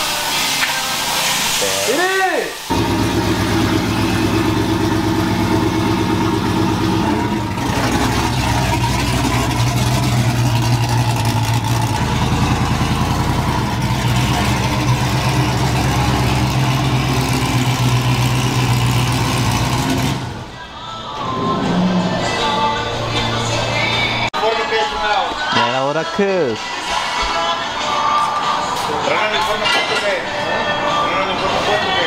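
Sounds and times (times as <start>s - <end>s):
car engine idling: 2.7s - 20.8s.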